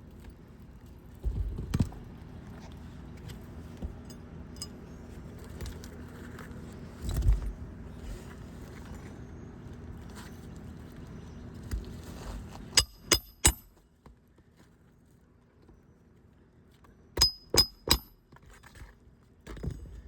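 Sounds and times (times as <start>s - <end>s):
metal tools and nails clinking: 4.1s - 4.9s, 17.2s - 18.2s.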